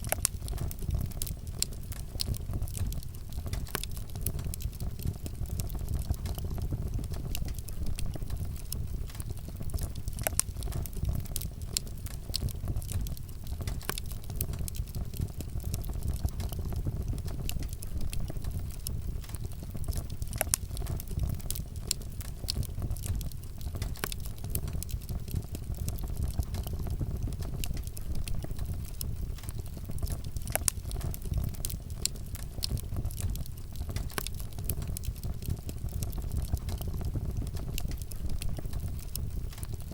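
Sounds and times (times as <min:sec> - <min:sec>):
campfire crackling and popping: 0:00.0 - 0:39.9
low fire rumble: 0:00.0 - 0:39.9.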